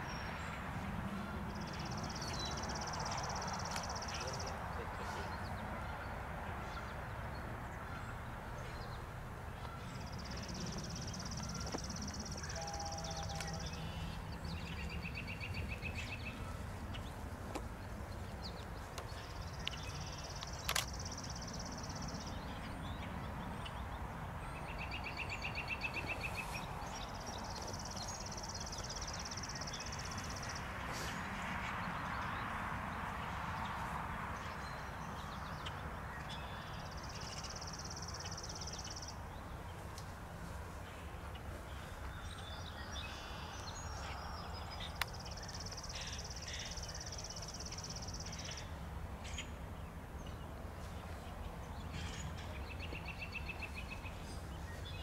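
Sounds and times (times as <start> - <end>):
songbirds trilling: 0.0 - 55.0
sharp click: 20.4 - 21.0.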